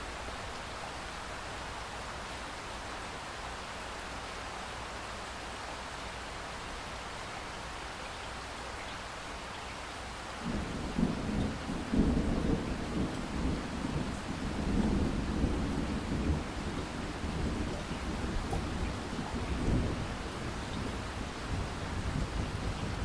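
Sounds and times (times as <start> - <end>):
rain hiss: 0.0 - 23.0
rolling thunder: 10.4 - 23.0.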